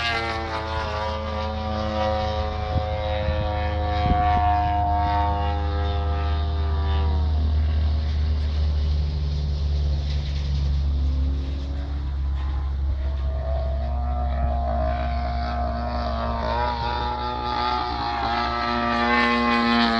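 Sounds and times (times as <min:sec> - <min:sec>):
model aircraft engine running: 0:00.0 - 0:19.9.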